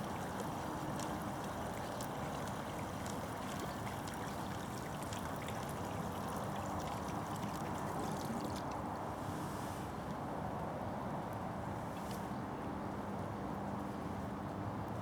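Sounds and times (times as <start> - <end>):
water trickling: 0.0 - 8.9
river water flowing: 0.0 - 9.1.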